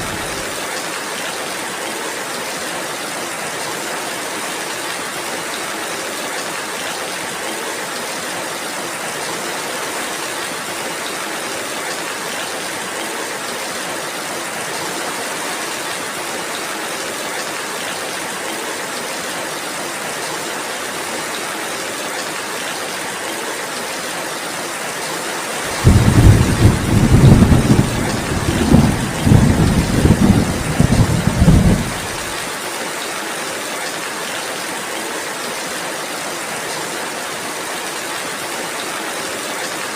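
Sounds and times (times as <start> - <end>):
steady rainfall: 0.0 - 39.9
rolling thunderclap: 25.8 - 32.4.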